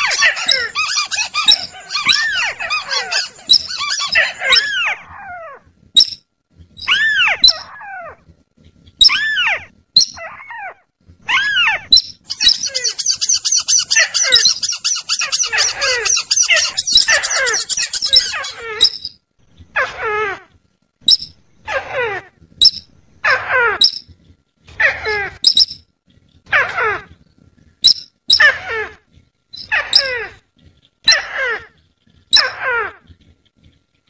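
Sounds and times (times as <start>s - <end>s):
high bird chattering: 0.0s - 4.9s, 12.3s - 19.0s
rising and falling bird calls: 0.0s - 5.0s, 12.3s - 19.0s.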